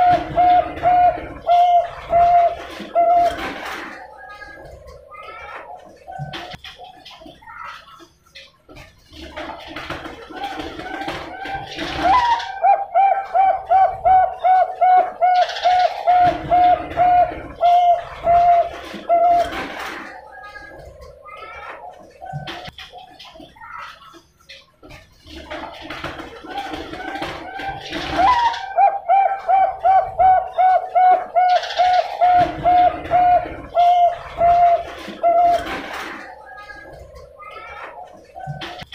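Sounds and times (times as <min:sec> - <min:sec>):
dove cooing: 0:00.0 - 0:06.5, 0:10.3 - 0:21.6, 0:26.5 - 0:38.9.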